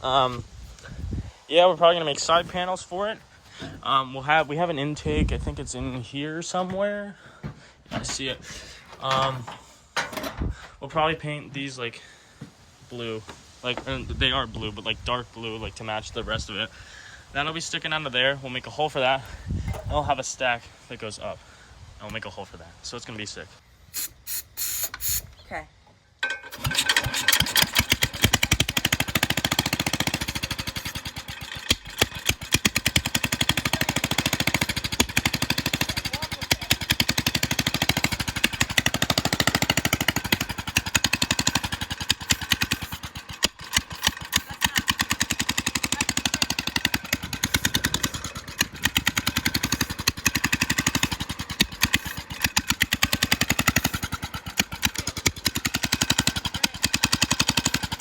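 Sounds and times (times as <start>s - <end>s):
small engine chugging: 26.2s - 58.0s.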